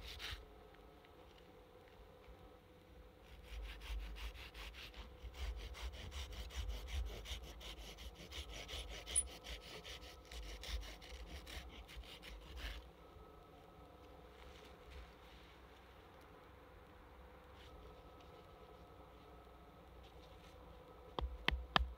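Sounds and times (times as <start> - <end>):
hand saw cutting wood: 3.4 - 12.8.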